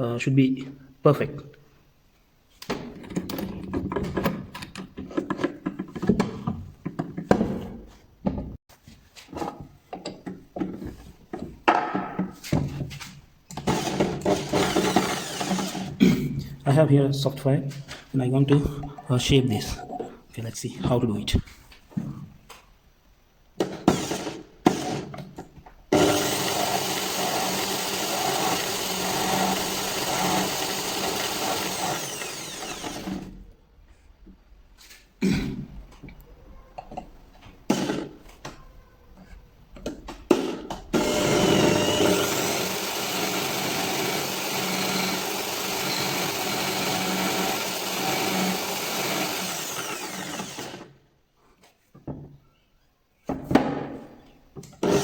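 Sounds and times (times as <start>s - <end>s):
handling knocks and clicks: 2.6s - 8.6s
electric drill running: 13.7s - 15.9s, 25.9s - 33.4s, 41.0s - 50.9s.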